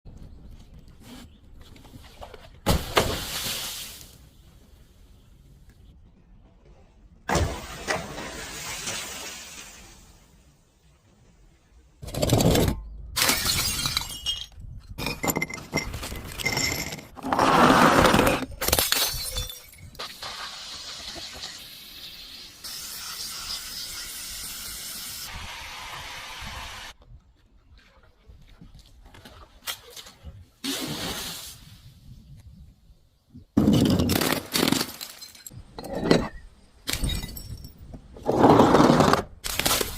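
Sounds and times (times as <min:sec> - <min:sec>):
glass shattering: 0:13.2 - 0:17.0, 0:18.6 - 0:20.0, 0:33.6 - 0:37.8.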